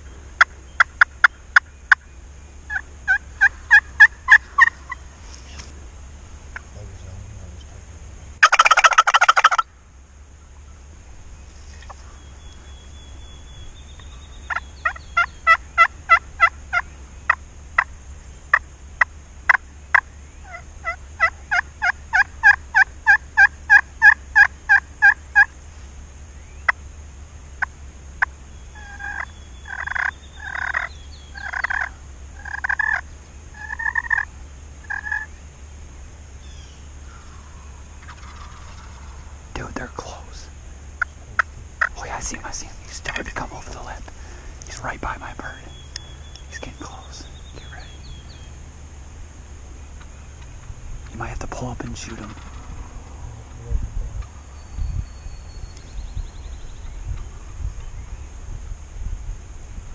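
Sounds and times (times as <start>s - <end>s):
wild turkey gobbling: 0.0s - 6.8s, 8.4s - 9.8s, 11.7s - 17.9s, 18.5s - 25.6s, 27.6s - 35.4s, 36.4s - 54.8s
turkey clucks: 0.0s - 7.0s, 8.4s - 9.7s, 14.0s - 17.9s, 18.5s - 25.5s, 27.6s - 35.3s, 37.0s - 48.6s, 49.9s - 54.5s
turkey yelps: 2.7s - 5.7s, 8.4s - 9.7s, 14.5s - 17.9s, 19.5s - 25.5s, 28.8s - 33.0s, 33.6s - 34.3s, 34.9s - 35.3s, 37.1s - 39.3s.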